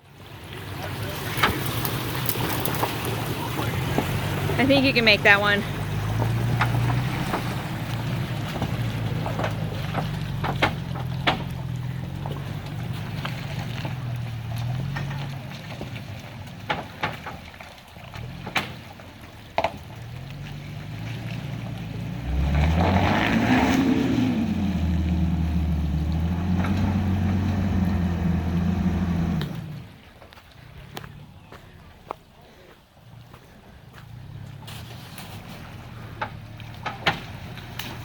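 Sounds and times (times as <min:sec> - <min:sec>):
pickup engine running: 0:00.2 - 0:30.3, 0:33.1 - 0:38.0
sharp knocks and clicks: 0:06.2 - 0:11.8, 0:36.2 - 0:38.0.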